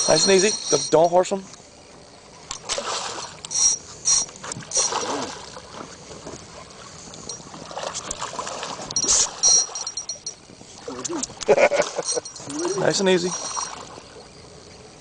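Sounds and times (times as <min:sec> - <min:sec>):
water splashing: 0:02.6 - 0:03.4, 0:04.2 - 0:14.3.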